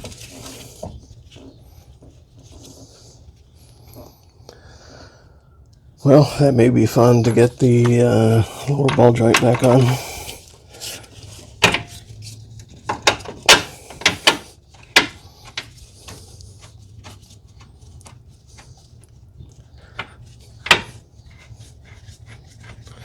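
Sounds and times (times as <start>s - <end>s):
low steady hum: 0.0s - 23.0s
hand tools clinking and knocking: 6.9s - 11.0s, 12.9s - 16.2s, 20.0s - 21.0s.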